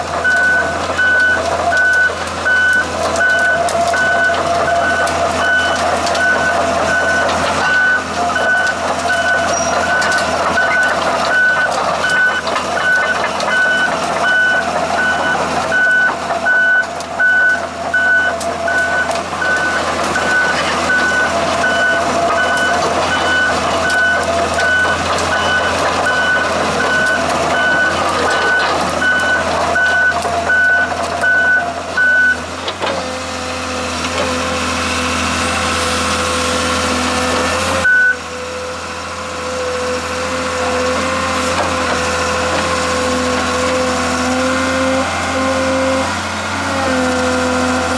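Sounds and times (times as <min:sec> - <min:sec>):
diesel engine running: 0:00.0 - 0:47.9
excavator travel alarm beeping: 0:00.1 - 0:32.5, 0:37.6 - 0:38.3.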